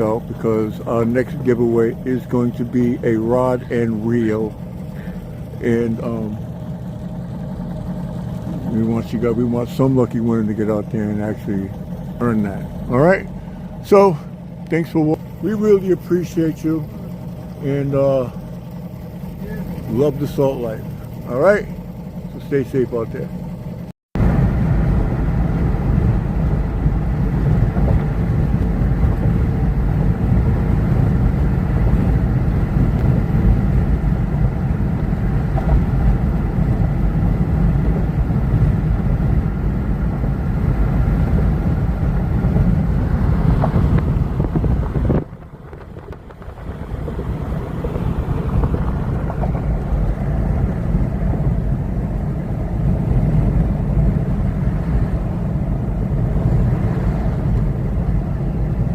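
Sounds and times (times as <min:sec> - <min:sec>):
vehicle engine running: 0:00.0 - 0:58.9
wind buffeting microphone: 0:24.2 - 0:58.9.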